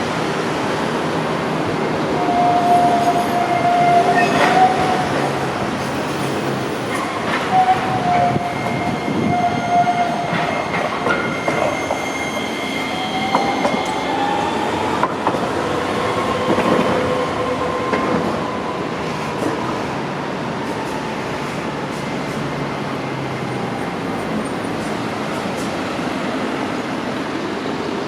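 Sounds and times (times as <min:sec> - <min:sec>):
street traffic noise: 0:00.0 - 0:28.0
streetcar wheels squealing: 0:02.1 - 0:19.9.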